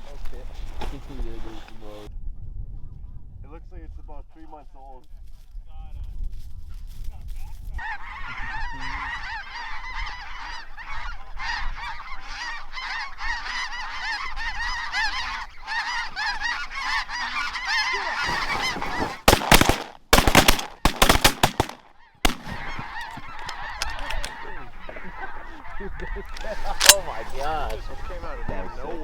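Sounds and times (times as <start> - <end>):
geese honking: 7.8 - 29.0
shotgun shots: 18.3 - 22.8, 26.8 - 27.2.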